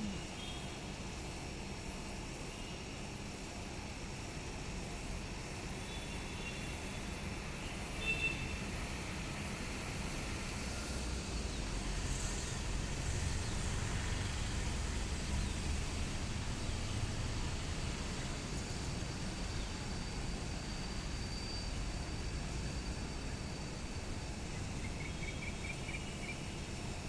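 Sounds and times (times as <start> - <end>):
even hiss: 0.0 - 1.1.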